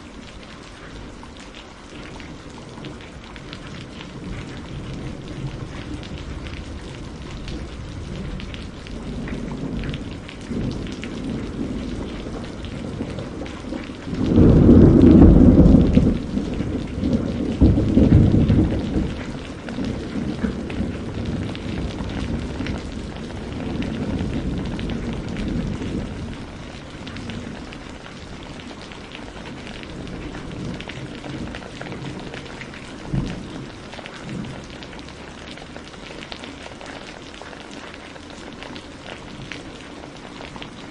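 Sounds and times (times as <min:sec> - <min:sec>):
steady rain: 0:00.0 - 0:40.9
thunder rumbling: 0:02.3 - 0:36.3
sharp thunder crack: 0:14.2 - 0:19.3.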